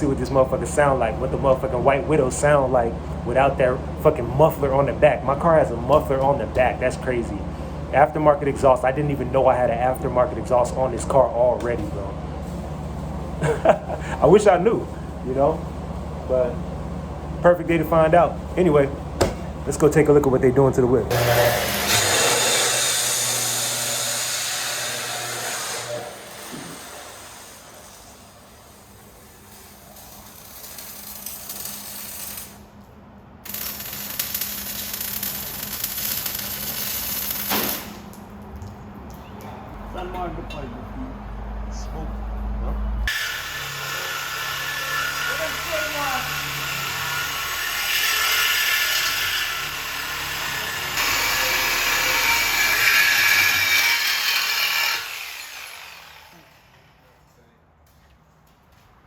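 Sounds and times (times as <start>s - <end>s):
power tool cutting metal pipe: 21.1s - 32.6s, 43.1s - 57.0s
arc welding crackling sizzle: 21.1s - 38.3s.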